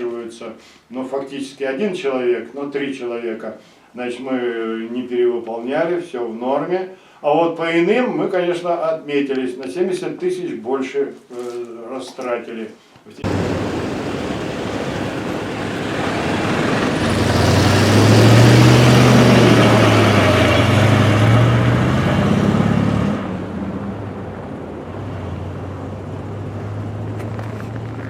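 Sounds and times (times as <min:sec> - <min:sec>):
road noise: 0:13.2 - 0:28.0
vehicle engine hum: 0:13.2 - 0:28.0.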